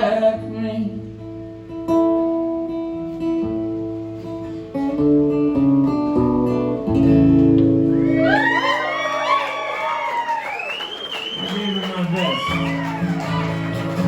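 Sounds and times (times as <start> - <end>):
acoustic guitar strumming chords: 0.4 - 8.5, 12.5 - 14.0.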